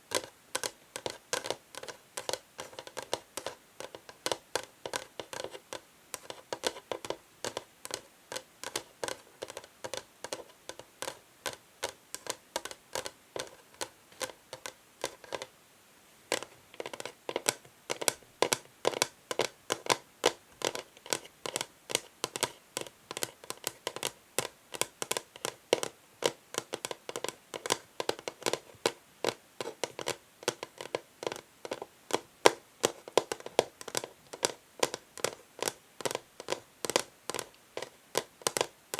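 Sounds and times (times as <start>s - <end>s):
fingernails tapping on wood: 16.3s - 38.7s.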